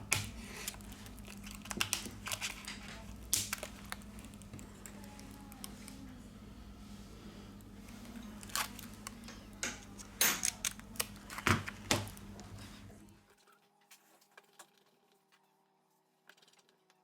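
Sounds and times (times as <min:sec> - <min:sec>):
steady low hum: 0:00.0 - 0:13.3.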